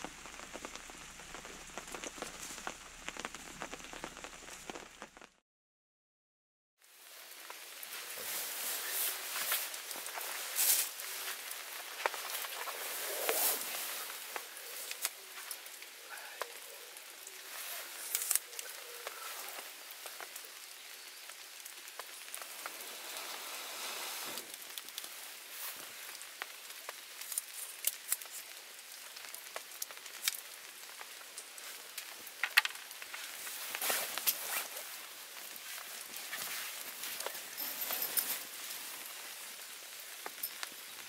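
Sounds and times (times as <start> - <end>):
water drips ticking: 0.0 - 5.3
steady rain hiss: 0.0 - 5.4, 6.8 - 41.0.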